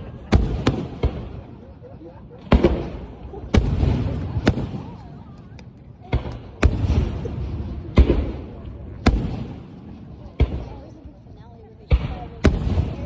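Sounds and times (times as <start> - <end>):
fireworks booming: 0.0 - 10.9, 11.9 - 13.0
fireworks crackling: 0.3 - 1.7, 2.4 - 11.1.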